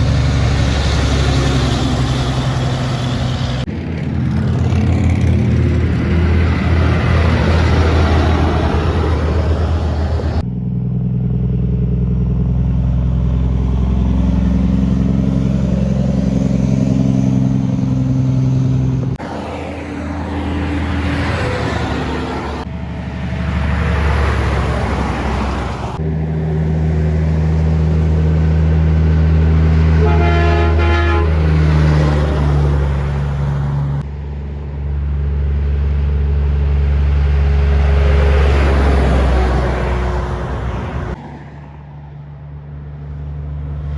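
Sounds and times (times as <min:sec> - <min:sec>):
trucks passing with diesel engines: 0:00.0 - 0:43.9
truck horn toot: 0:29.9 - 0:34.0.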